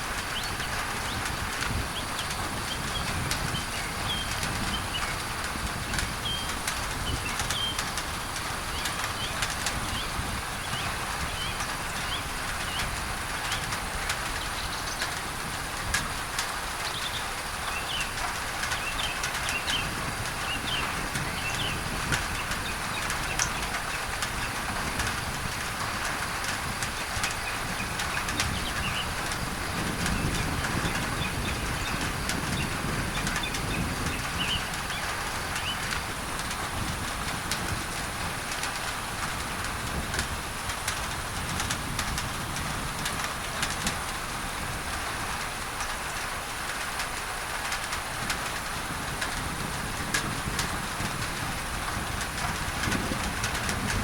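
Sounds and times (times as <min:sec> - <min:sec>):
rain on a tin roof: 0:00.0 - 0:54.0.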